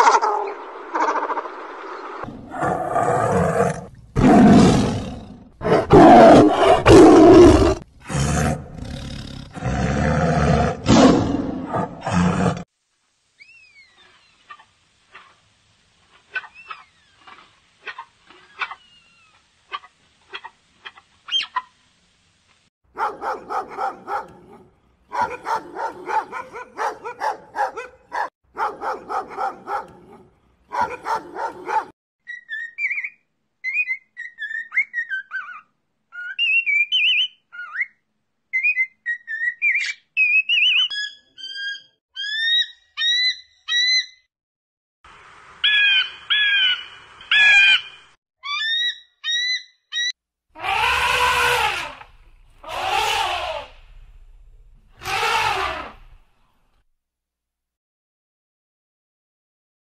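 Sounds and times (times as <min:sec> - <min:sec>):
bird chirps and whistled notes: 0:13.4 - 0:14.4, 0:32.2 - 0:35.5, 0:36.2 - 0:44.3
rapid repeated animal calls: 0:45.7 - 0:53.8, 0:54.9 - 0:56.2.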